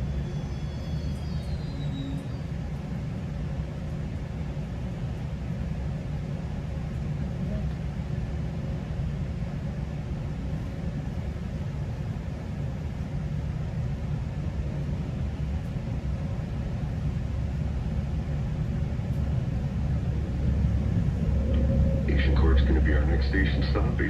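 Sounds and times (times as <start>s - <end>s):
train rumble inside coach: 0.0s - 24.0s
faint steady tones: 19.0s - 24.0s.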